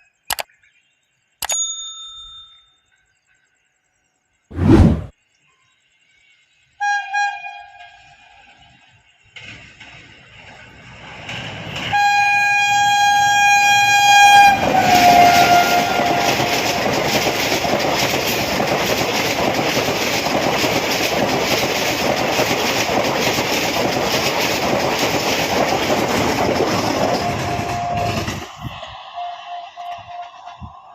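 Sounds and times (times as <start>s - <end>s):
train horn: 6.8s - 8.6s, 11.8s - 17.0s, 27.1s - 30.7s
train rumble and wheel clatter: 7.5s - 30.9s.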